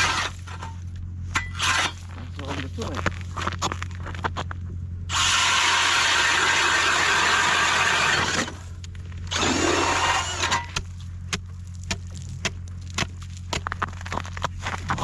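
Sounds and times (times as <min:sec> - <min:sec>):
power ice auger drilling: 0:00.0 - 0:00.8, 0:01.4 - 0:02.7, 0:05.1 - 0:11.4.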